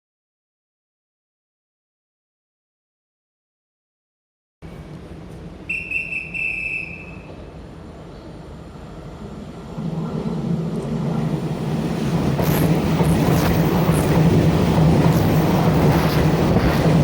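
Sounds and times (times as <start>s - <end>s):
train rumble: 4.6s - 17.0s
high whistle-like tone: 5.7s - 7.4s.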